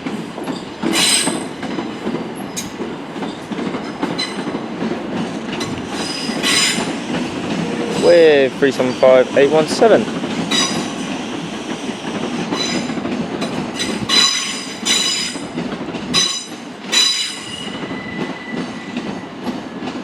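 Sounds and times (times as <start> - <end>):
train wheels rumbling on track: 0.0 - 20.0
high-pitched wheel squeals: 17.1 - 19.1.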